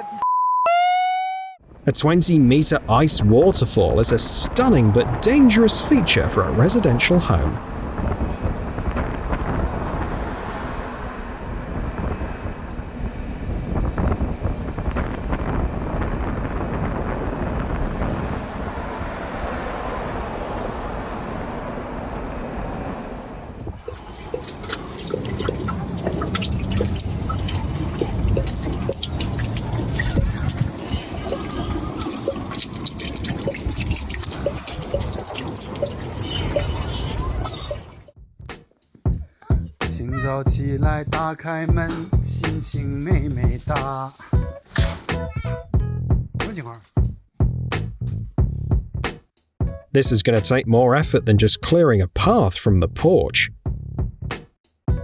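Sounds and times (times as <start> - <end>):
sharp drips and ticks: 23.6 - 38.1
water running and splashing: 23.7 - 38.1.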